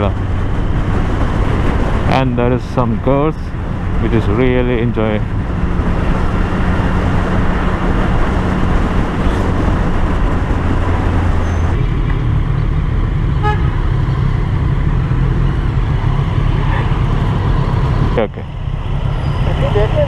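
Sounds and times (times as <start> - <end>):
wind rush on microphone: 0.0 - 13.6
motorcycle horn toot: 13.4 - 13.7.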